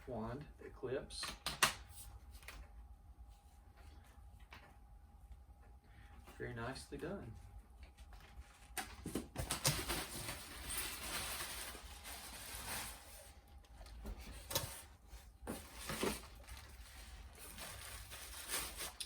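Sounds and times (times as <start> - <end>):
packaging rustling: 8.2 - 19.0.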